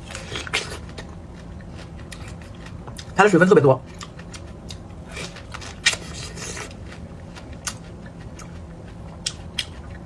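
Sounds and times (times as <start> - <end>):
chewing with sharp clicks: 6.8 - 10.0.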